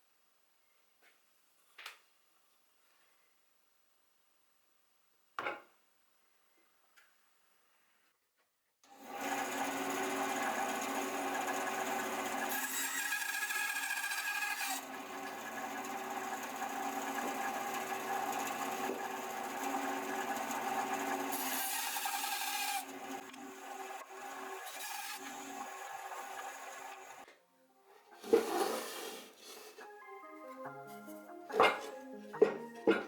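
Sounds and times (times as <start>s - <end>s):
power tool cutting wood: 8.9s - 27.2s.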